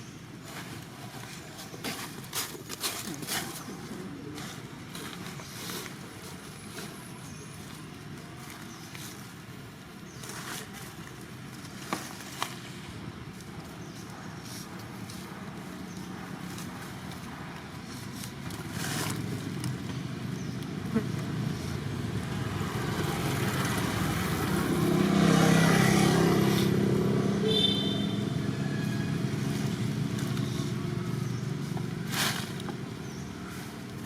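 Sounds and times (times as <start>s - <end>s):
vehicle engine passing by: 20.4s - 33.3s.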